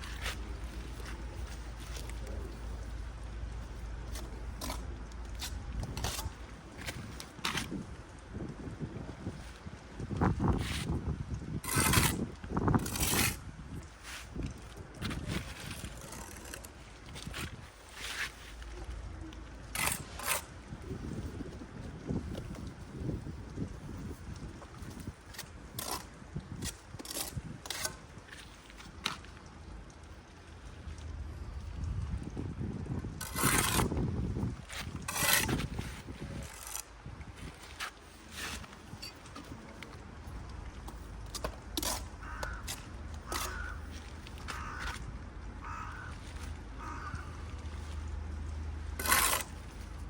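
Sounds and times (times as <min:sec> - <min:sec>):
wind rumble on microphone: 0:00.0 - 0:17.9, 0:18.7 - 0:30.0, 0:30.8 - 0:50.0
low steady hum: 0:00.0 - 0:50.0
tools scraping on brick: 0:11.6 - 0:13.4, 0:19.7 - 0:20.5, 0:25.7 - 0:29.2, 0:33.2 - 0:34.0, 0:34.6 - 0:36.8, 0:37.4 - 0:39.7, 0:40.9 - 0:45.0, 0:49.0 - 0:49.9.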